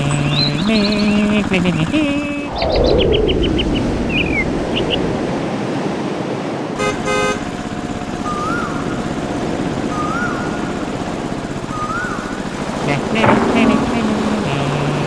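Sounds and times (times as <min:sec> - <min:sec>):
toy vehicle motor: 0:00.0 - 0:02.4, 0:06.9 - 0:15.0
toy horn tooting: 0:06.8 - 0:07.4.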